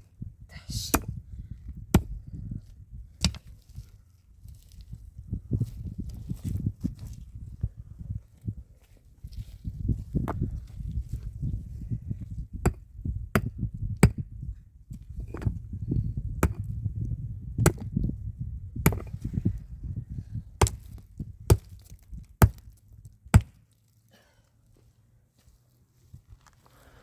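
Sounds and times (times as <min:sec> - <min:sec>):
tool chopping wood: 0:01.9 - 0:02.2, 0:03.2 - 0:03.5, 0:12.6 - 0:14.2, 0:16.4 - 0:16.7, 0:17.6 - 0:17.9, 0:18.8 - 0:19.2, 0:20.6 - 0:23.6.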